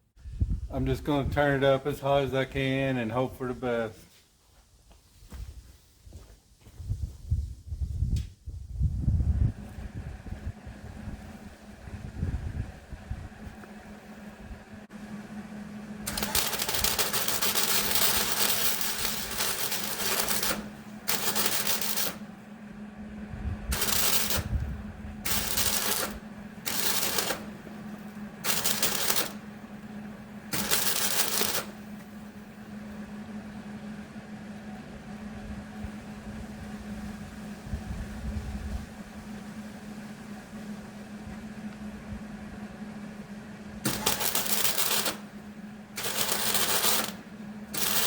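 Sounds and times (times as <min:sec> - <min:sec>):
low hum: 0:06.8 - 0:48.0
welding arc crackling: 0:16.0 - 0:22.4, 0:23.7 - 0:32.3, 0:43.9 - 0:45.3, 0:46.0 - 0:48.0.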